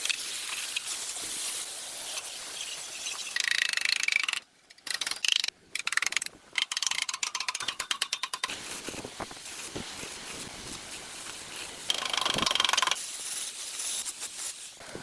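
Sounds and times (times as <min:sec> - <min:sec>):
rapid mechanical clicking: 0:11.9 - 0:13.0.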